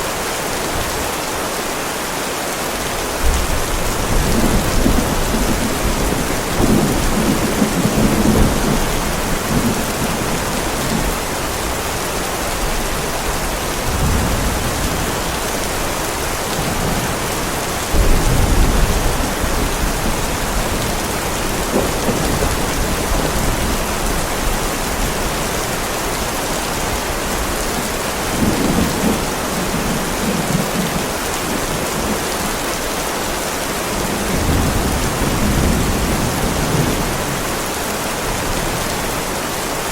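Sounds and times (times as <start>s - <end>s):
heavy rain on driveway: 0.0s - 39.9s
thunder rolling: 3.2s - 12.0s, 13.0s - 25.7s.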